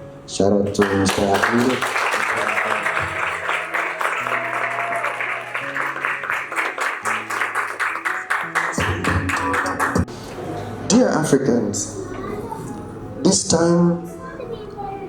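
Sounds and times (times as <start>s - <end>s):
background music with low notes: 0.0s - 12.0s
audience applauding: 0.6s - 10.2s.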